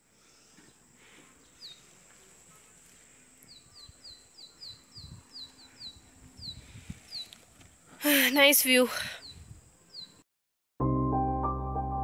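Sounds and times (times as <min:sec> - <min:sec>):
small bird calling: 0:01.4 - 0:01.9, 0:03.4 - 0:07.4.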